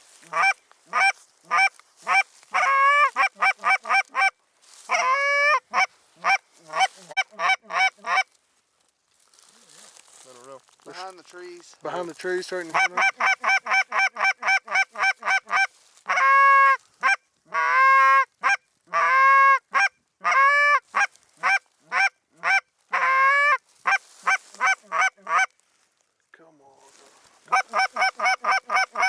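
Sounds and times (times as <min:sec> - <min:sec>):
snow goose yelping calls: 0:00.2 - 0:08.3, 0:12.6 - 0:25.5, 0:27.4 - 0:29.0.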